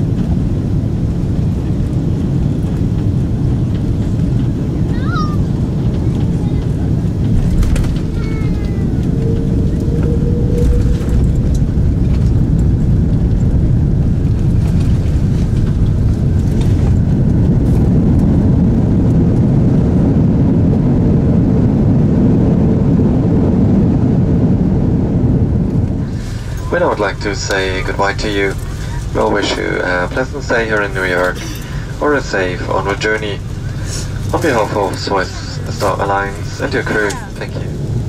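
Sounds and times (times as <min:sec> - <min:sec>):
airplane cabin low rumble: 0:00.0 - 0:38.0.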